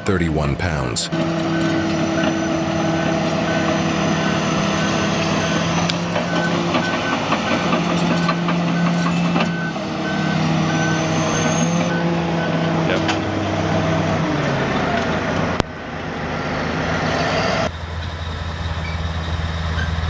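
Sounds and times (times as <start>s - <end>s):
backup alarm beeping: 0.0s - 13.5s
bulldozer diesel engine running: 0.0s - 20.0s.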